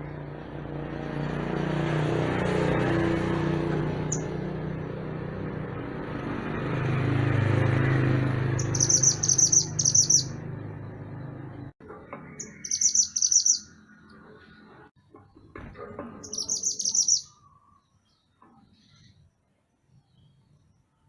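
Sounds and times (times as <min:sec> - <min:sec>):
bird chirping rapidly: 0:03.9 - 0:04.4, 0:08.4 - 0:10.6, 0:12.3 - 0:14.0, 0:16.2 - 0:17.7.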